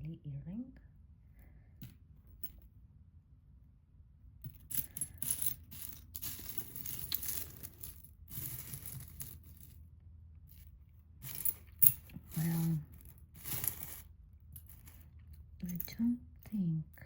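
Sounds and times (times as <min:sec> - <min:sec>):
jewelry rustling and clicking: 0:04.4 - 0:09.8, 0:10.4 - 0:16.5.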